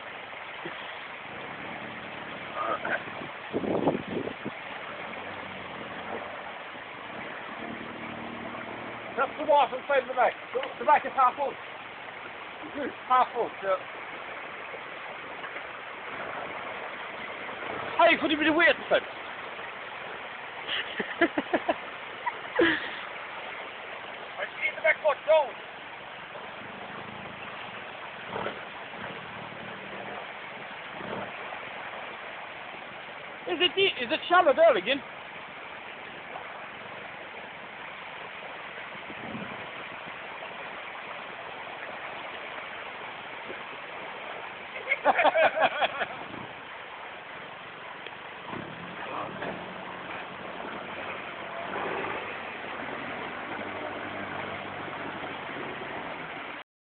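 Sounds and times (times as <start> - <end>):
faint engine hum: 0.0 - 3.5, 4.3 - 24.5, 25.6 - 33.7, 44.7 - 56.6
steady hiss: 0.0 - 55.2
water rushing: 0.0 - 56.6.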